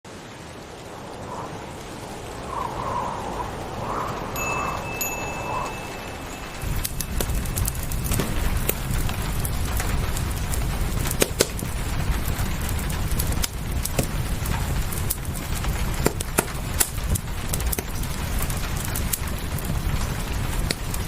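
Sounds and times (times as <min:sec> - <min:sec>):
low rumble: 0:00.1 - 0:16.0
rain hissing: 0:00.1 - 0:21.0
wood fire crackling and popping: 0:00.1 - 0:21.0.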